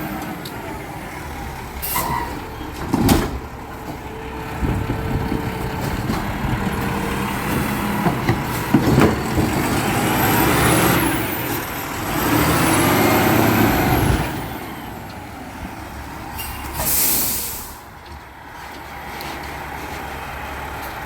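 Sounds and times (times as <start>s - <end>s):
garbage truck whining: 0.0s - 18.0s
air brake hiss: 16.4s - 17.8s.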